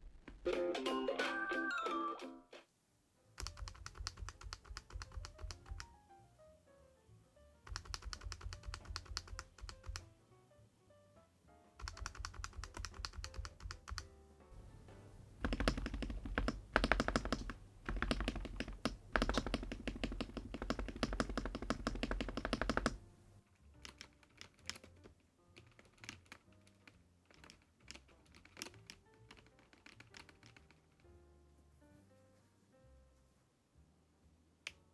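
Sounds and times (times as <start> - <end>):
mechanical keyboard typing: 3.4 - 6.0, 7.7 - 10.1, 11.8 - 23.1, 23.8 - 31.1.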